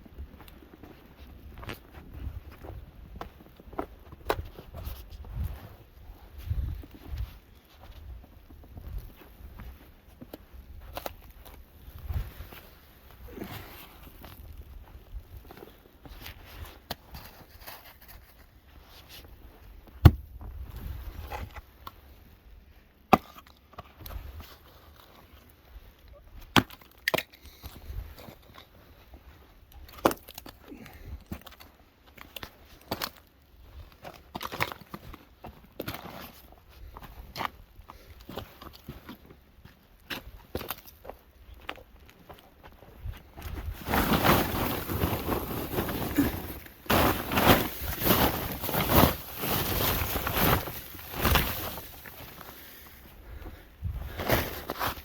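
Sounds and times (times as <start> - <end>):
wooden knocks and cracks: 20.0 - 20.5.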